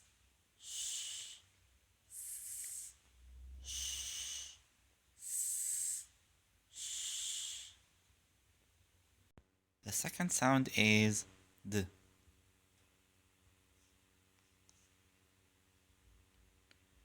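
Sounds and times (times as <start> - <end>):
man hissing sibilants: 0.0 - 8.0.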